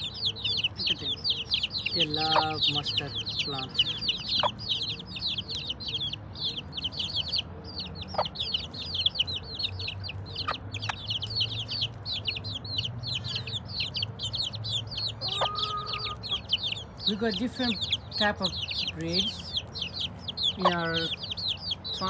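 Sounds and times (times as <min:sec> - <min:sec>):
chicks peeping: 0:00.0 - 0:22.0
hen clucking: 0:00.0 - 0:22.0.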